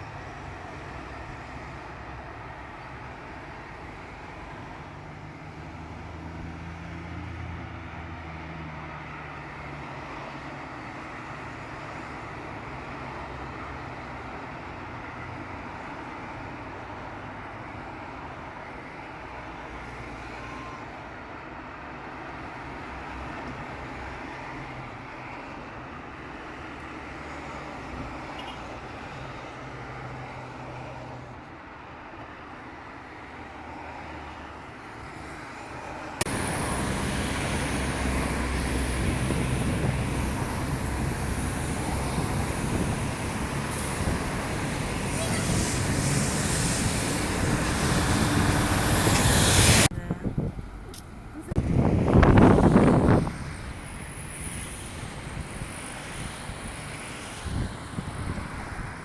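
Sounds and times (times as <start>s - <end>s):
road vehicle engine hum: 0.0s - 59.0s.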